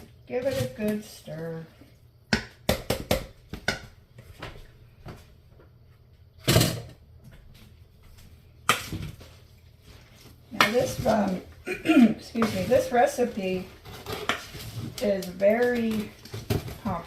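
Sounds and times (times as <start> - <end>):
spoon stirring in a bowl: 12.2 - 16.3.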